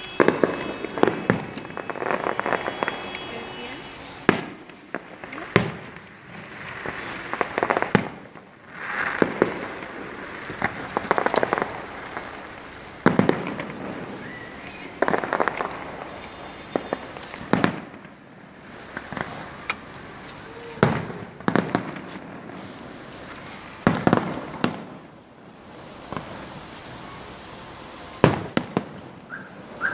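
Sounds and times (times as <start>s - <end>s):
fireworks banging: 0.0s - 29.9s
fireworks crackling: 0.0s - 29.9s.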